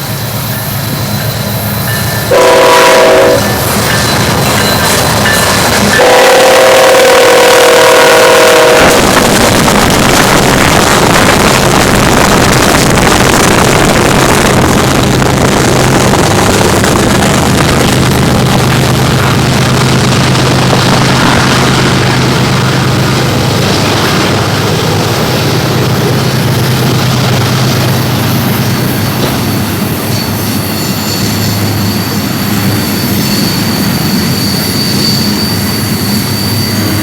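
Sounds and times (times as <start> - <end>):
freight train passing: 0.0 - 37.0
locomotive air horn: 2.3 - 3.6, 6.0 - 9.1.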